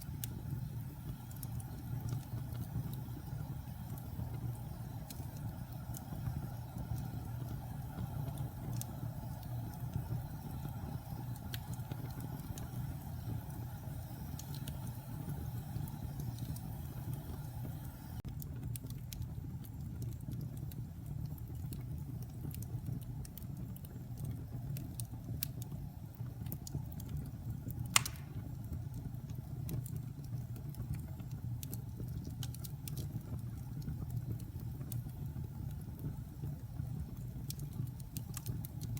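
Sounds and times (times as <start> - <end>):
fire crackling: 0.0 - 38.9
wood fire rumbling: 0.0 - 38.9
sharp loud pop: 28.0 - 28.4.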